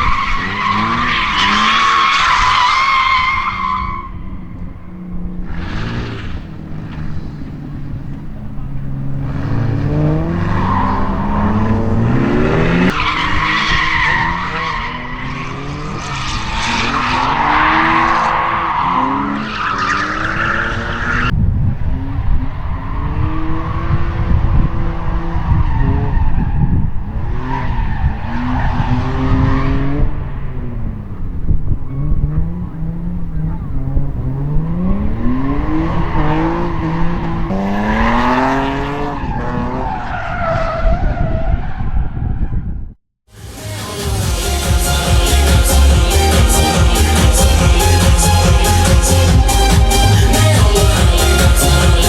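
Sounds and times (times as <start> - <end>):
tyres screeching: 0.0 - 7.8
car engines revving: 0.0 - 42.5, 43.3 - 52.0.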